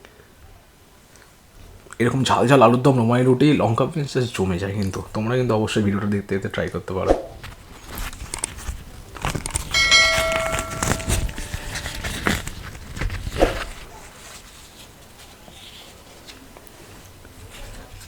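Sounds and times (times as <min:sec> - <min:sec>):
food being handled: 0:07.5 - 0:15.0
metal dish struck ringing: 0:09.7 - 0:12.5.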